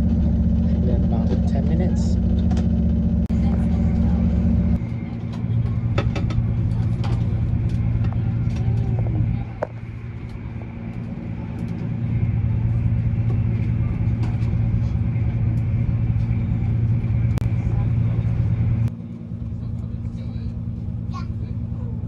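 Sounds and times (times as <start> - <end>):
train engine drone: 0.0 - 22.0.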